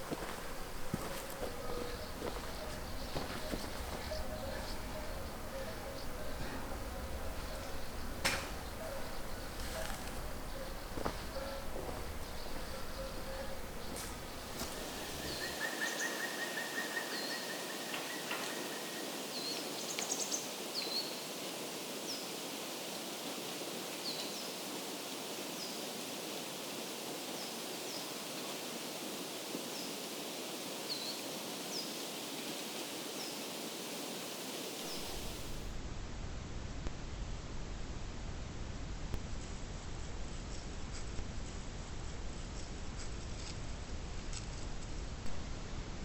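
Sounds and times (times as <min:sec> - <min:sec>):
small bird chirping: 0:00.0 - 0:21.2
steady rushing noise: 0:00.0 - 0:23.9, 0:31.4 - 0:40.4.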